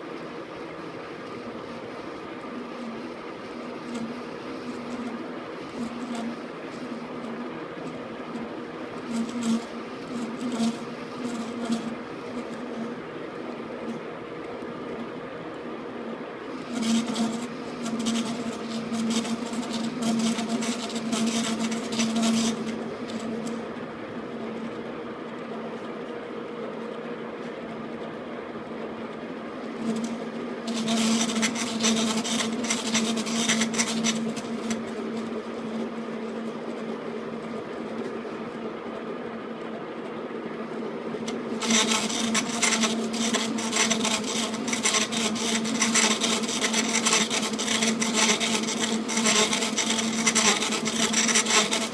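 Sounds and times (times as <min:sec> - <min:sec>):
lathe tool rasping on metal: 0:30.7 - 0:35.0, 0:41.6 - 0:51.9.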